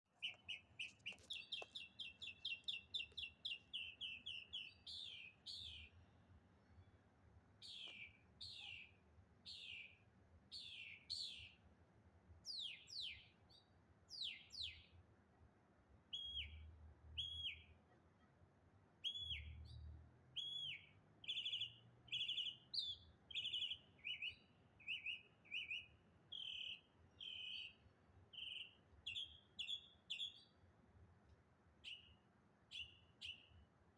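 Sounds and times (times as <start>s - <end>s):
songbird calling: 0.2s - 6.0s, 7.6s - 10.0s, 16.1s - 17.8s, 20.4s - 27.8s, 28.4s - 30.6s, 31.8s - 33.6s.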